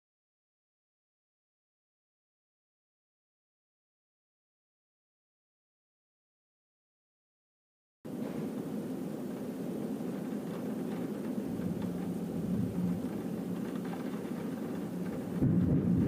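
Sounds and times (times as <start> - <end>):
low rumbling noise: 8.1 - 16.0.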